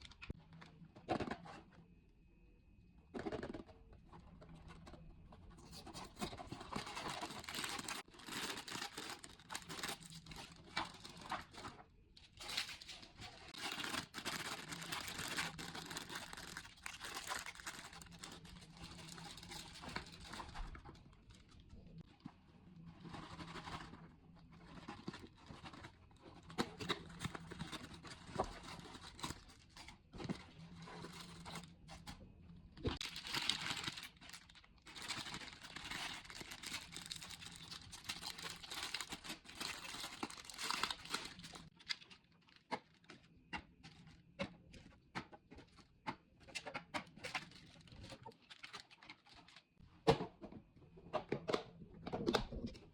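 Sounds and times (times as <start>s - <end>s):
plastic packaging crinkling: 5.7s - 22.0s, 33.0s - 43.2s, 47.1s - 49.8s.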